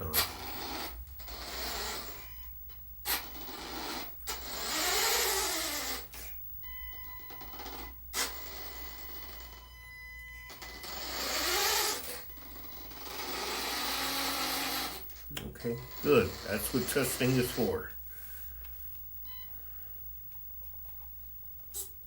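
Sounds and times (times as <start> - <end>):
hydraulic pump whirring: 0.0 - 6.4, 7.0 - 17.9
steady high whine: 0.0 - 22.0.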